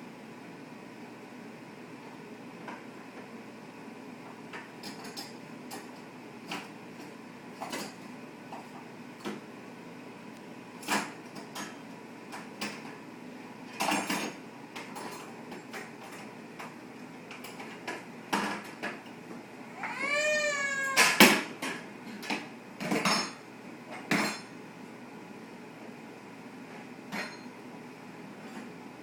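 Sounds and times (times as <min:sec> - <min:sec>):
dishes and cutlery clinking: 0:22.2 - 0:23.4.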